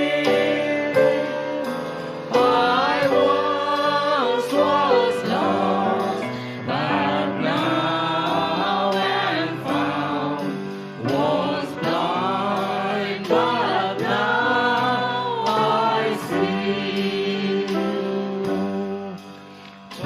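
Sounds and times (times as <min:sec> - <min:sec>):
group singing: 0:00.0 - 0:19.3
piano: 0:00.0 - 0:20.0.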